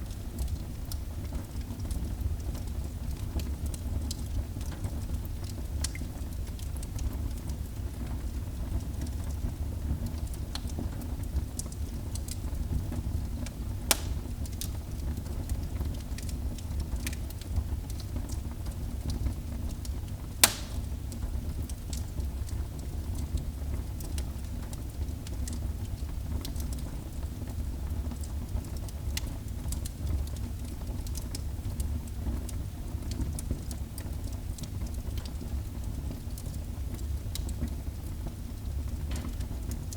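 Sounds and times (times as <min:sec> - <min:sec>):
fire burning in a fireplace: 0:00.0 - 0:39.9
fire crackles and pops: 0:00.0 - 0:39.9.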